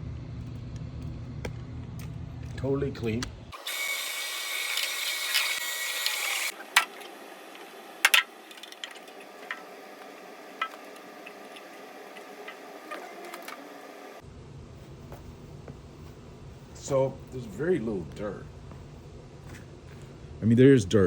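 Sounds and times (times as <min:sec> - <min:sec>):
carpet machine whirring: 0:03.5 - 0:14.2.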